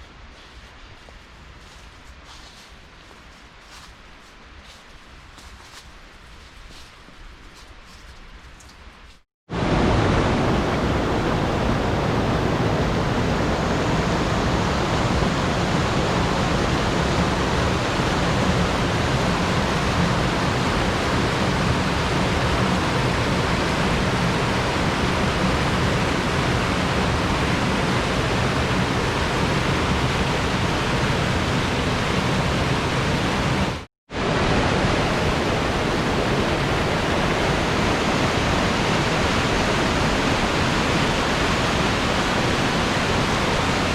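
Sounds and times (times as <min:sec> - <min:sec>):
flowing water rushing: 0:09.5 - 0:43.9.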